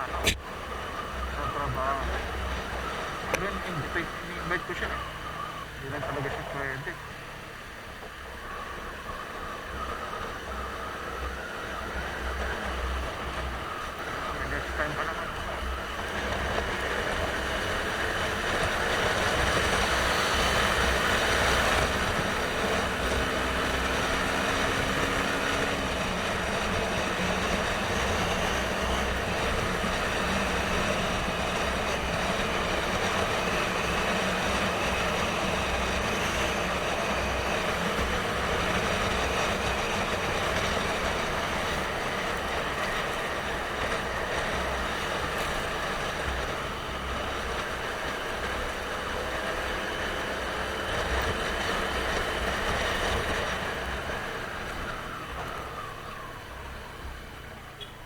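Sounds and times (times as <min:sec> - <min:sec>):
wind and road noise: 0:00.0 - 0:58.0
motorcycle engine running: 0:15.1 - 0:56.2.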